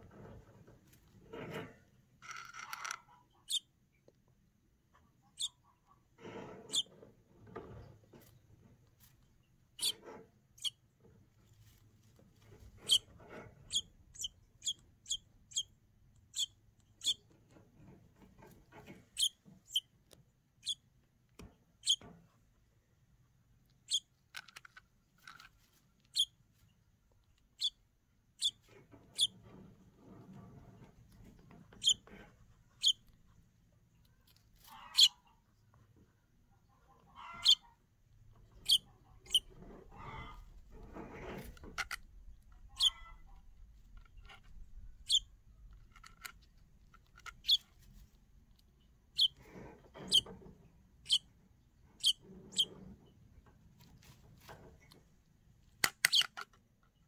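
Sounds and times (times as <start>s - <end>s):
young bird peeping: 3.3s - 3.7s, 5.2s - 5.8s, 9.7s - 10.8s, 12.6s - 17.5s, 19.1s - 19.9s, 20.6s - 20.8s, 27.5s - 29.5s, 31.2s - 33.2s, 34.6s - 35.4s, 36.9s - 37.8s, 38.4s - 41.4s, 42.3s - 43.5s, 44.1s - 45.4s, 47.2s - 47.8s, 48.8s - 49.4s, 50.0s - 50.4s, 51.0s - 51.4s, 52.0s - 52.8s.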